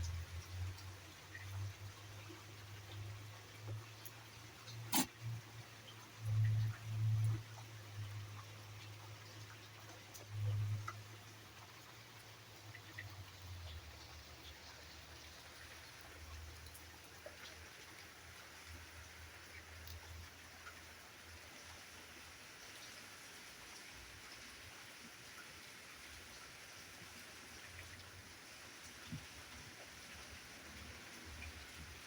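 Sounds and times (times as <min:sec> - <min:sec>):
light rain: 0:00.0 - 0:32.0.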